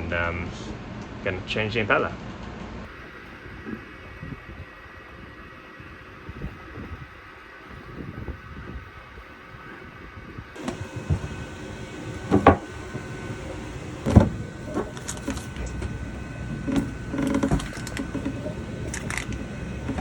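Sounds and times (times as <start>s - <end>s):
knocks and clunks of tools: 12.1s - 12.8s, 14.0s - 16.0s, 16.6s - 20.0s.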